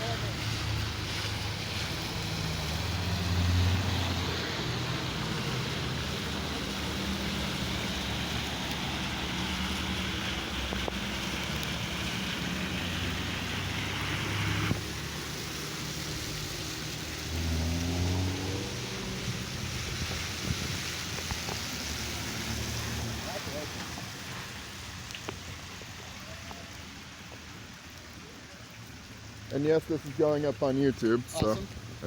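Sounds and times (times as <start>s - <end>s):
cars driving past: 0.0s - 26.2s
wind or tyre hiss: 0.0s - 32.0s
engine revving: 1.9s - 8.3s, 15.6s - 20.1s.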